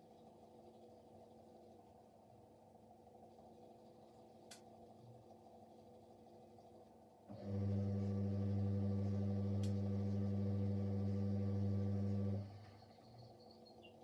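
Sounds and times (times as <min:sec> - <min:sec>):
washing machine electrical hum: 0:00.0 - 0:14.0
faint click: 0:04.4 - 0:04.7, 0:09.6 - 0:09.8.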